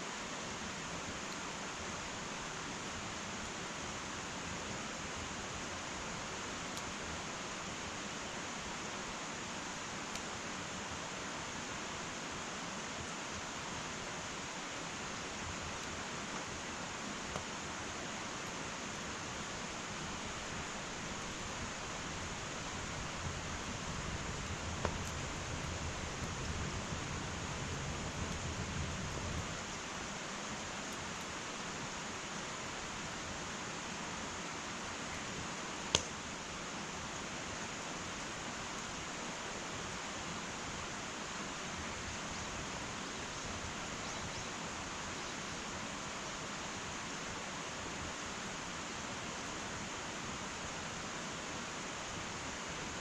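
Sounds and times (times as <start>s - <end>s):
wood fire hissing: 0.0s - 53.0s
burning wood popping: 24.6s - 26.5s.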